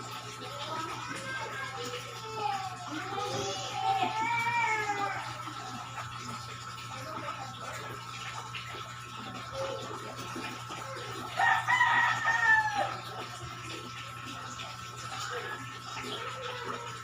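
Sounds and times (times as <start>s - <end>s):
rooster crowing: 11.4s - 13.2s.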